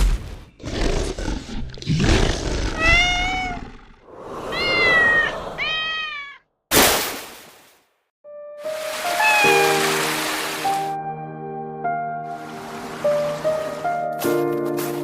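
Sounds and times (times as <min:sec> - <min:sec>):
kitten meowing: 0:02.8 - 0:03.6, 0:04.5 - 0:06.4, 0:09.1 - 0:09.8.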